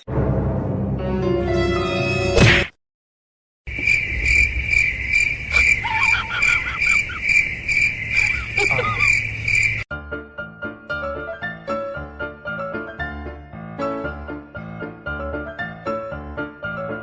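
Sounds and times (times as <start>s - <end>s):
insect chirping: 3.7s - 9.9s
short squeaky calls: 5.5s - 9.8s.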